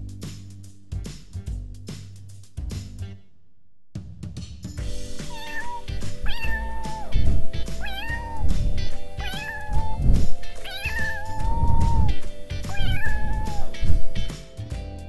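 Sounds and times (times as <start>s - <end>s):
background music: 4.3s - 15.0s
kittens meowing: 5.2s - 14.3s.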